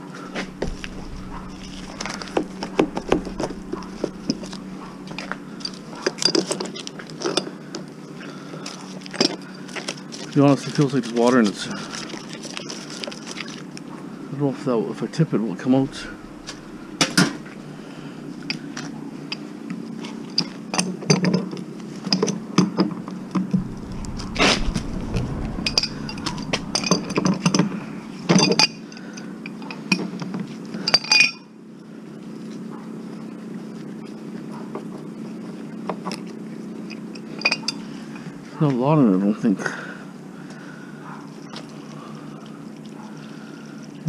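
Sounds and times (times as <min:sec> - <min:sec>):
steady low hum: 0:00.2 - 0:06.6, 0:15.3 - 0:19.2, 0:23.5 - 0:28.3.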